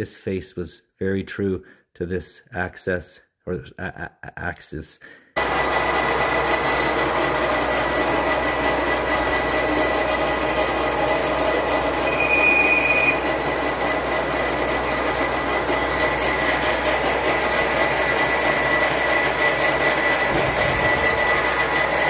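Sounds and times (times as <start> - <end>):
metal lathe running: 5.4 - 22.0
high squeal: 12.0 - 13.3.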